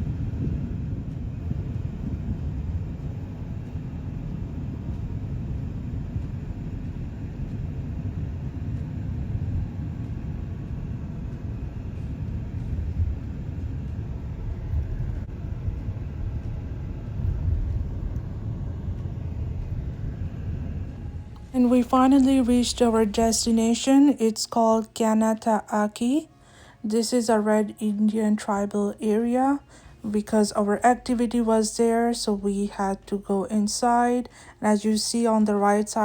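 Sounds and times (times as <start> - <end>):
car road and engine rumble: 0.0 - 23.7.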